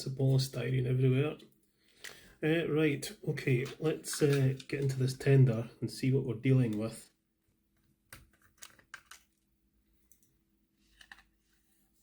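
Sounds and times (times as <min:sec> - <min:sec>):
plastic parts clicking and tapping: 0:03.6 - 0:05.2, 0:07.8 - 0:09.4.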